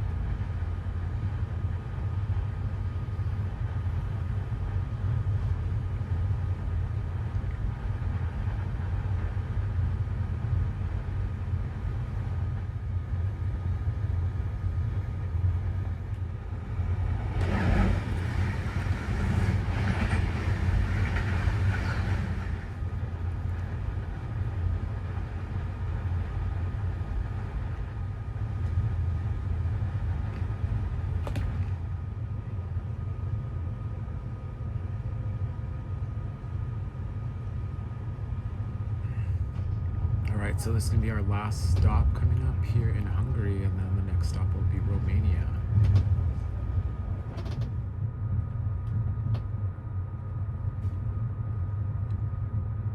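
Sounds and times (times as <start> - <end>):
train running rumble: 0.0 - 52.9
train rushing: 13.9 - 33.9, 38.4 - 49.6.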